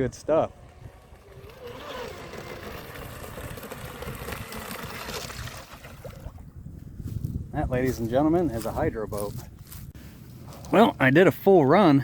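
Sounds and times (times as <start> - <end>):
electric motor whine: 0.1 - 5.7
water and wind hiss: 0.2 - 6.6.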